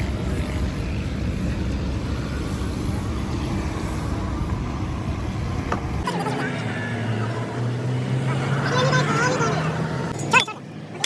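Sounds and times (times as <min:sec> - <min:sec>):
machinery low rumble: 0:00.0 - 0:06.0.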